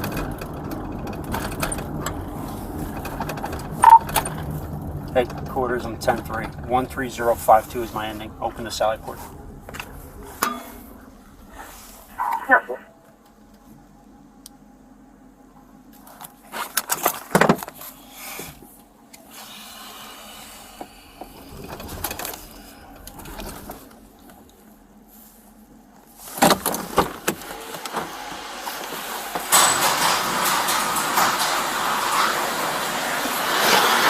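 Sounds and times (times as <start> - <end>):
knocks and rattles inside car: 0.0 - 12.5, 16.0 - 17.8, 20.7 - 25.0, 26.0 - 28.2
steady rushing noise: 0.0 - 12.9.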